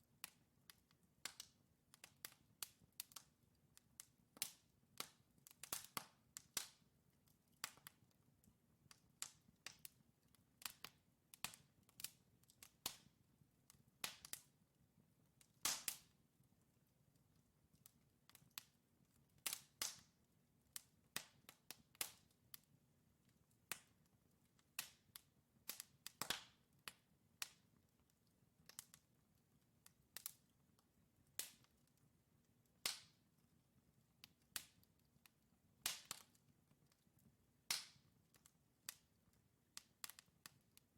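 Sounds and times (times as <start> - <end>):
low background of fire: 0.0 - 40.9
fire crackling and popping: 0.2 - 40.9.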